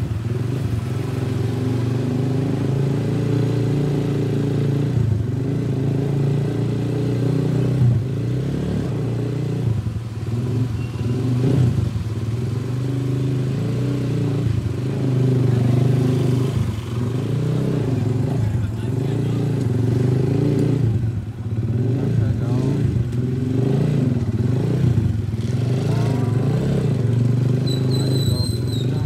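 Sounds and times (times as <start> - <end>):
motorcycle throttle blips: 25.0 - 29.0.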